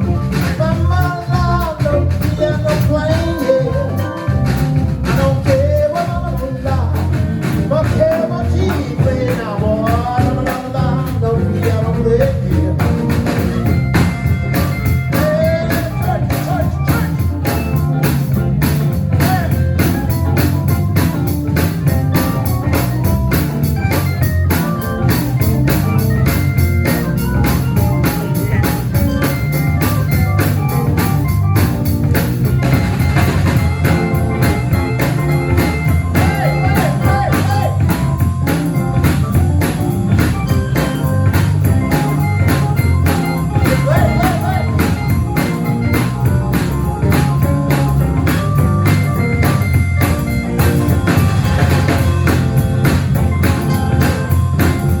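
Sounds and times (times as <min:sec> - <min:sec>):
drums hitting: 0:00.0 - 0:55.0
live band playing: 0:00.0 - 0:55.0
person singing: 0:00.2 - 0:04.4, 0:05.0 - 0:13.7, 0:14.9 - 0:18.2, 0:35.9 - 0:38.3, 0:43.6 - 0:45.2.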